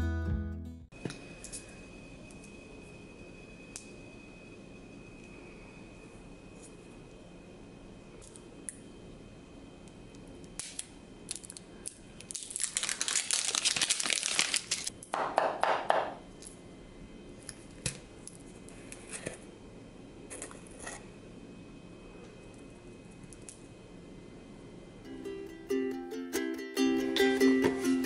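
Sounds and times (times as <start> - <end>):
crinkling rustle: 11.3 - 14.9.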